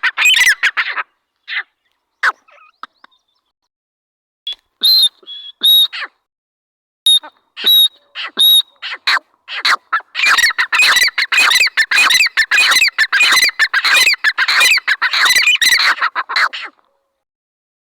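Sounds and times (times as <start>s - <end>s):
francolin calling: 9.6s - 16.1s.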